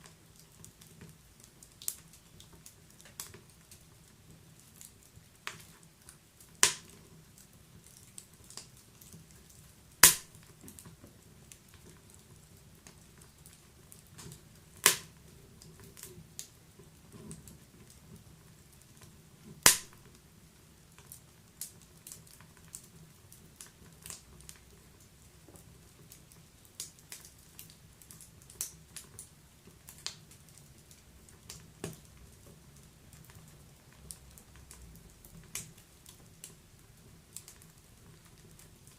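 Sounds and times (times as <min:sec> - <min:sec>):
wood fire crackling: 0:00.0 - 0:38.9
fire hissing: 0:10.0 - 0:10.5, 0:14.8 - 0:15.2, 0:19.6 - 0:20.0.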